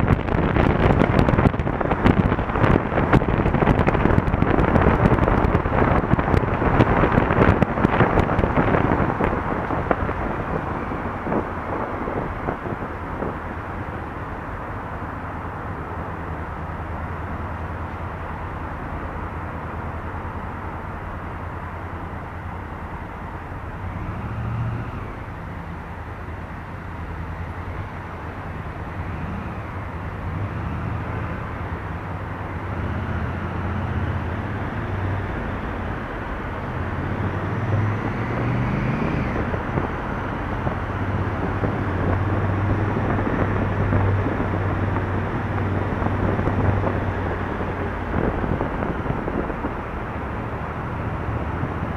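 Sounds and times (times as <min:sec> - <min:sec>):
road rush: 0:00.0 - 0:51.9
wind: 0:00.0 - 0:51.9.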